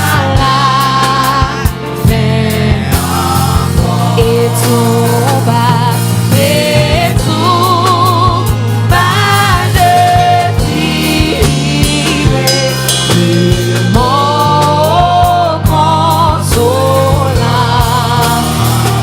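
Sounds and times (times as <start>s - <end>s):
person singing with vibrato: 0.0s - 19.0s
drum hits: 2.0s - 15.9s
band sustained low chords: 2.0s - 16.2s.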